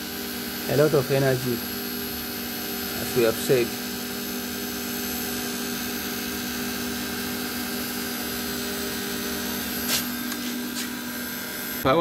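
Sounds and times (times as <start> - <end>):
refrigeration compressor humming: 0.0 - 12.0.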